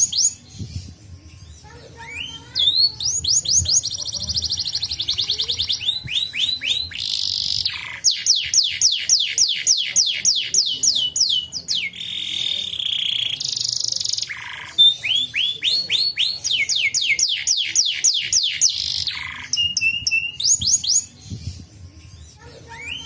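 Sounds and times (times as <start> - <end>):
canary singing: 0.0 - 23.0.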